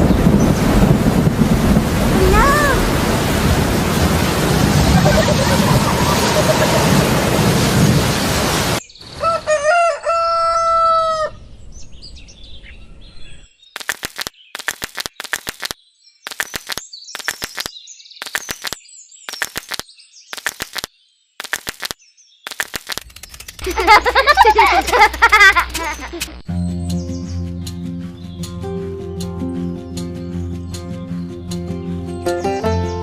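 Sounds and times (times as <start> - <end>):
loud rushing noise: 0.0 - 8.8
rooster crowing: 9.2 - 11.4
sharp clicks: 13.8 - 24.1, 24.8 - 26.5.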